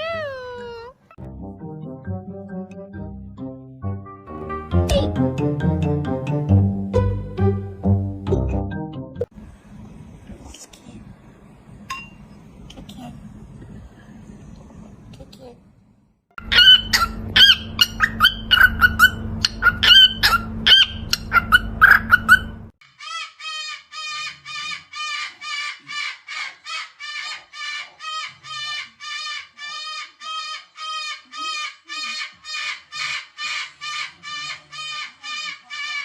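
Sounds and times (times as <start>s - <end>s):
parrots squawking: 0.0s - 1.0s, 16.4s - 36.0s.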